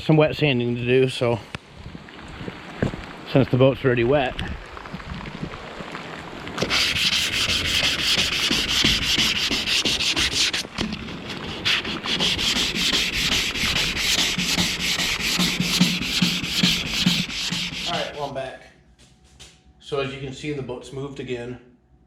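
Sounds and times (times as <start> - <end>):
wet sanding by hand: 6.6 - 18.3.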